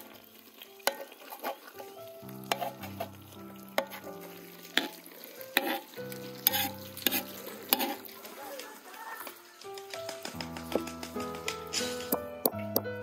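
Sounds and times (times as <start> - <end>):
oil sizzling in a pot: 0.0 - 9.8
metal tool clicking on pot: 0.8 - 1.6, 2.5 - 3.0, 4.7 - 8.1.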